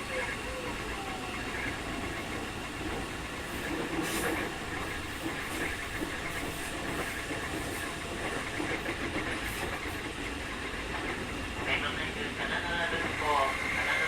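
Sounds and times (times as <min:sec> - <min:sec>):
train wheels rumbling on rails: 0:00.0 - 0:14.0
short clacks of train wheels: 0:02.9 - 0:11.3.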